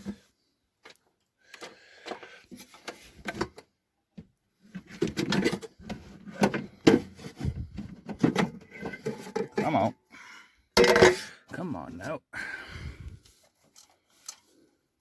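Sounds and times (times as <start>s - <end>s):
metal parts and tools clattering: 8.2s - 9.9s, 10.8s - 11.4s.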